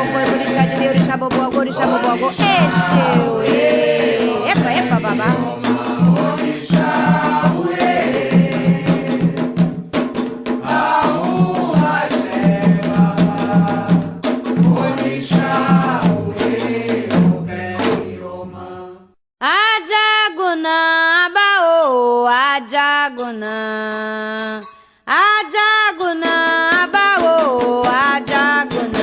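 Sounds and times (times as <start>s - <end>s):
voices singing a chant: 0.0s - 9.6s, 10.6s - 19.2s
drums: 0.0s - 18.2s, 26.2s - 29.0s.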